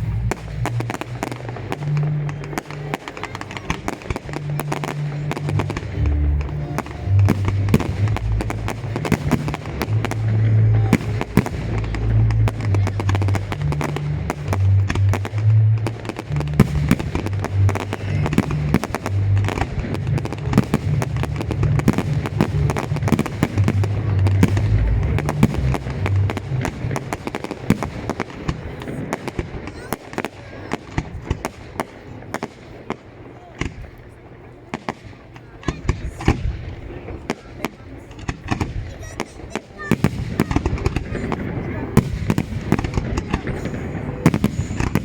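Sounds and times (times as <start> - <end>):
music with heavy bass: 0.0 - 3.0, 3.8 - 28.0
fireworks bangs: 0.0 - 45.0
fireworks crackling: 0.0 - 45.0.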